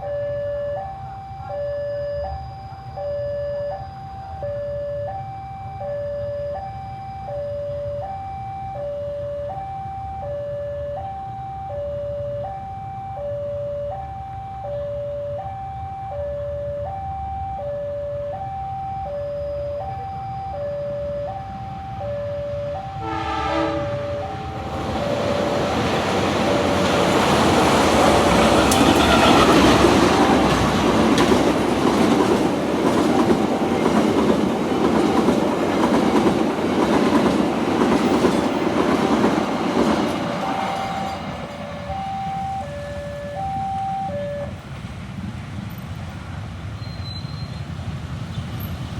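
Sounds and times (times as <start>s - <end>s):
train horn blast: 23.0s - 24.6s, 28.2s - 30.7s
train wheels clattering: 24.7s - 41.8s
level crossing bell ringing: 40.4s - 44.6s.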